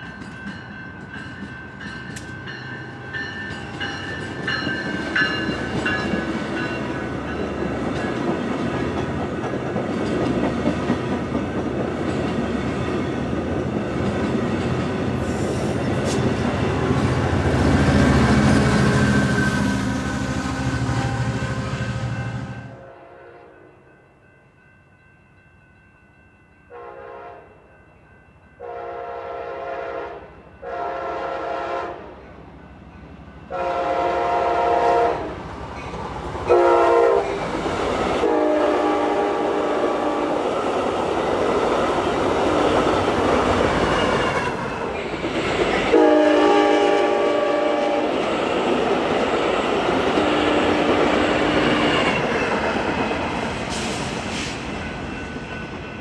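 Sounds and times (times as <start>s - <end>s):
train wheels rolling on rail: 0.0s - 22.7s, 32.3s - 56.0s
train air horn blasts: 17.8s - 23.7s, 26.7s - 27.5s, 28.6s - 32.2s, 33.5s - 35.3s, 36.5s - 37.4s, 38.2s - 40.4s, 45.9s - 48.2s, 50.2s - 51.8s.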